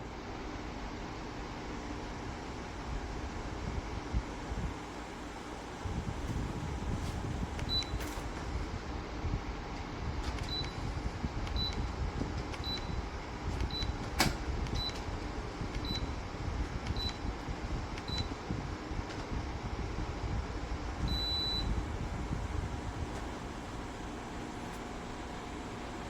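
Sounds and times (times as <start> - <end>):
fan running hiss: 0.0 - 26.0
fan control beeps: 5.8 - 8.6, 10.2 - 18.7, 21.0 - 26.0.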